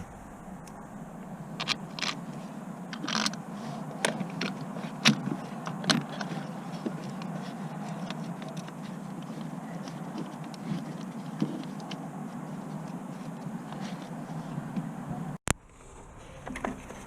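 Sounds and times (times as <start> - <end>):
steady low hum: 0.0 - 15.7
tools and metal parts clinking: 2.9 - 14.4.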